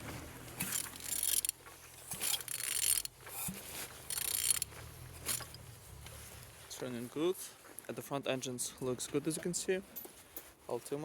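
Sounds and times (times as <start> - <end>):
ratchet turning engine: 0.6 - 5.6.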